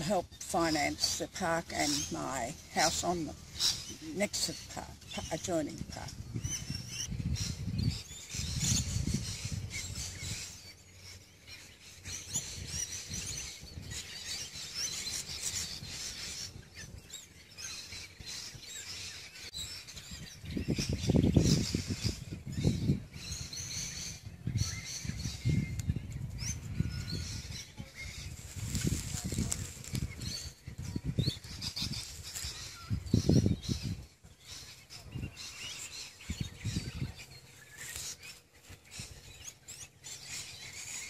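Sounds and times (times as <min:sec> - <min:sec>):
birds chirping and calling: 0:00.0 - 0:41.0
low rumble on microphone: 0:05.7 - 0:11.2, 0:19.6 - 0:34.3.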